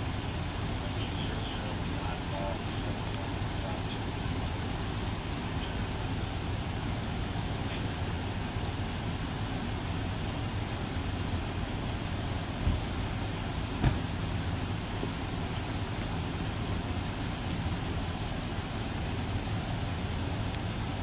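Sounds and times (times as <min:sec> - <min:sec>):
motor vehicle rumbling: 0:00.0 - 0:21.0
short thumps: 0:13.8 - 0:14.2.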